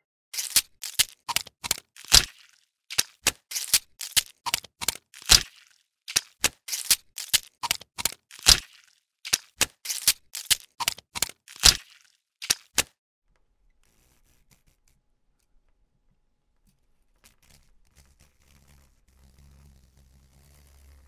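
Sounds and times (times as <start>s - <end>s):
sharp irregular clicks and cracks: 0.4s - 13.0s.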